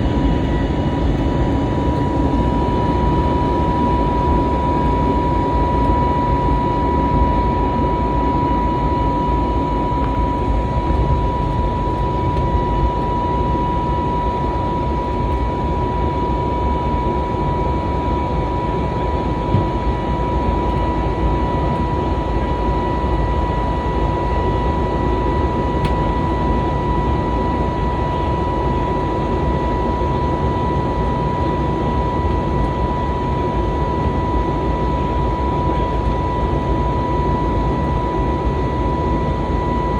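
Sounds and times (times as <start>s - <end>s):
high whine: 0.0s - 18.2s
jet engine and airflow rumble: 0.0s - 39.9s.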